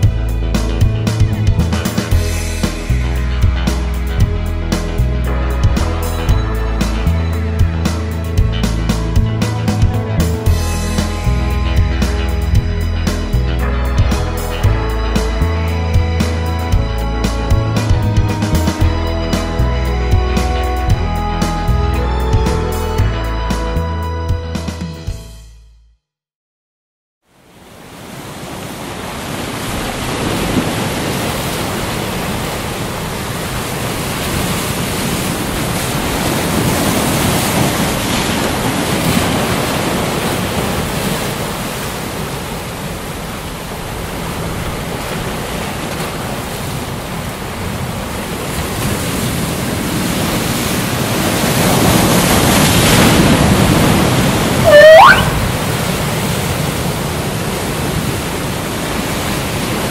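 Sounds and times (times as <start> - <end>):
ocean waves surf: 0.0 - 21.7, 27.3 - 59.9
short rising call: 54.6 - 55.7.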